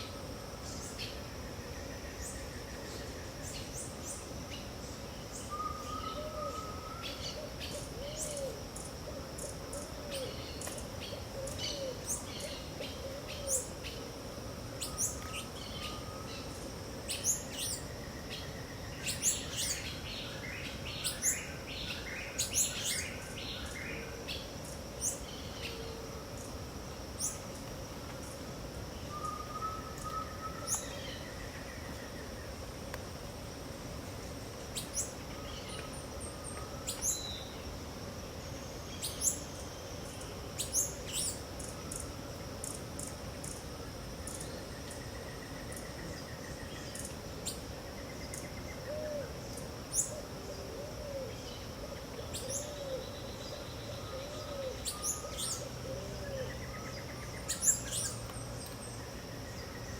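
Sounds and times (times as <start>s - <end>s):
insect drone: 0.0s - 59.9s.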